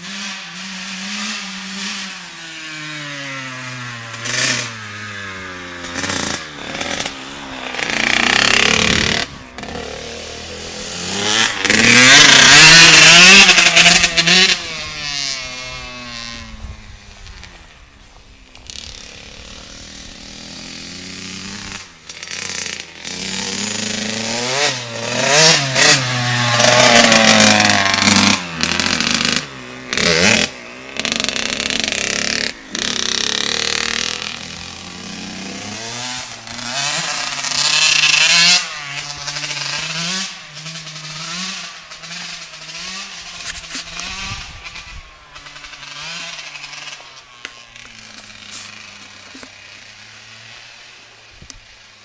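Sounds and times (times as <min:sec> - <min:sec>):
motocross bike engine revving: 0:00.0 - 0:52.0.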